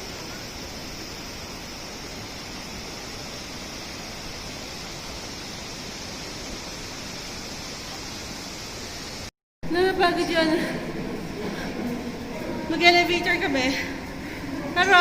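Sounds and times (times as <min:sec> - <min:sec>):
waterfall roaring: 0:00.0 - 0:09.3.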